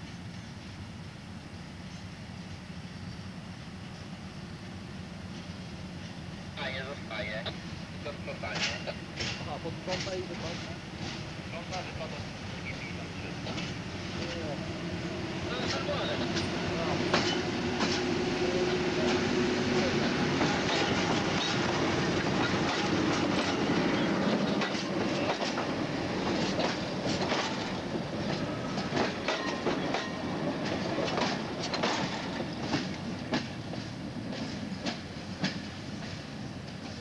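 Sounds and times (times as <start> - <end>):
diesel locomotive engine hum: 0.0 - 37.0
wheels clicking over rail joints: 8.5 - 11.2, 20.4 - 37.0.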